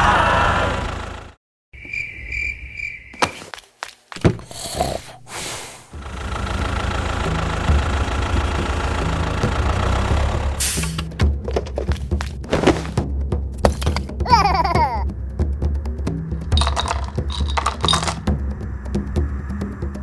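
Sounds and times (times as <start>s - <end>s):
small engine running: 0.0s - 1.4s, 5.9s - 12.9s.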